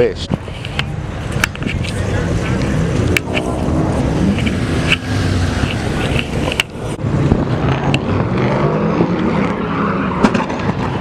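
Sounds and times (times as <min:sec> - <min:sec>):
car engine running: 0:00.9 - 0:08.2.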